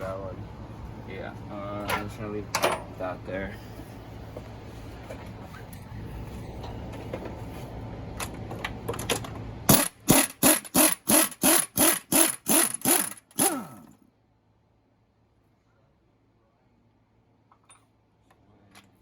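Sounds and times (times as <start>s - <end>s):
low steady hum: 0.0s - 19.0s
short mechanical tool bursts: 9.7s - 14.0s.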